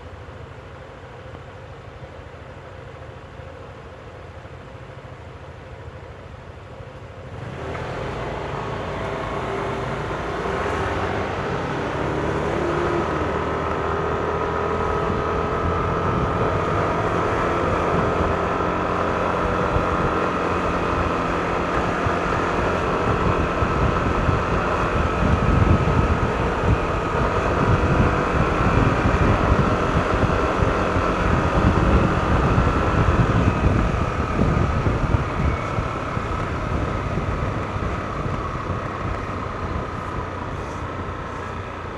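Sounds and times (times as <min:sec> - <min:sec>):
faint whine: 0:00.0 - 0:41.9
scooter engine running: 0:07.2 - 0:41.9
wind buffeting microphone: 0:14.0 - 0:41.8.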